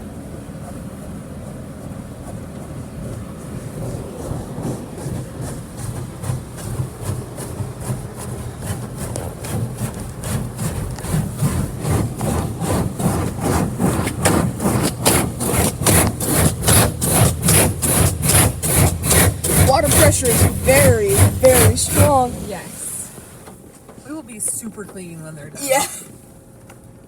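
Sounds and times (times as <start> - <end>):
water jets hissing on car: 0.8 - 24.8, 25.6 - 26.1
low steady hum: 17.4 - 26.4.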